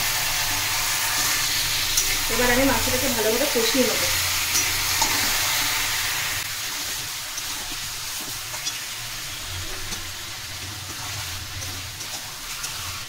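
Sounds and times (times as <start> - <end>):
meat sizzling in hot oil: 0.0 - 13.0
metal spatula scraping pan: 4.3 - 13.0.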